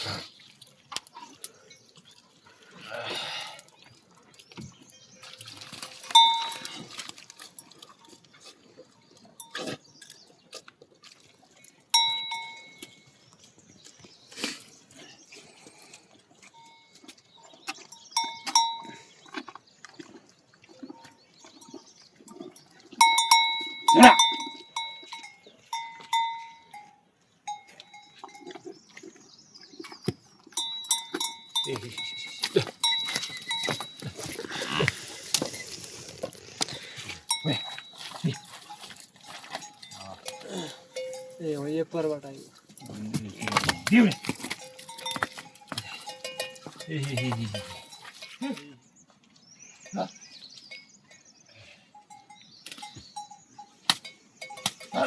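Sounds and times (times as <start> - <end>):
metal bell clanking: 6.1 - 6.8, 12.0 - 13.0, 23.0 - 28.4, 30.6 - 34.3, 37.3 - 38.8, 39.5 - 41.7, 42.8 - 48.4.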